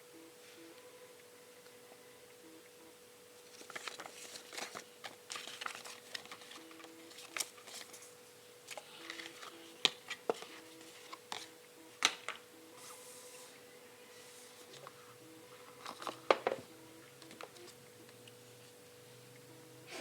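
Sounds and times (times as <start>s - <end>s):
faint steady hum: 0.0s - 20.0s
packaging rustling: 3.4s - 8.1s.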